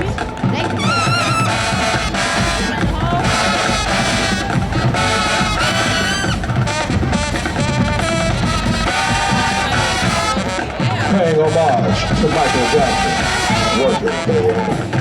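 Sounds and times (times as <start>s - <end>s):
drums: 0.0s - 15.0s
marching band brass: 0.0s - 15.0s.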